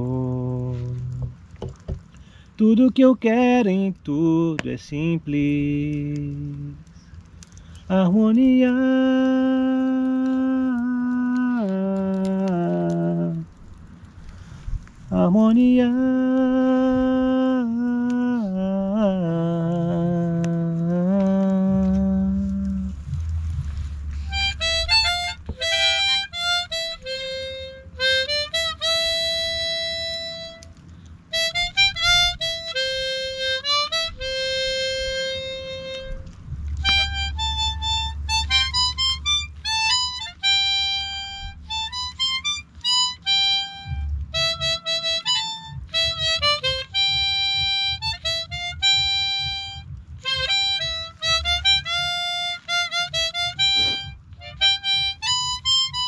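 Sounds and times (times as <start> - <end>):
breaths: 2.1 - 2.6, 6.9 - 7.9, 14.0 - 15.0, 30.8 - 31.2
low rumble: 4.0 - 43.1
harmonica melody: 21.1 - 56.0.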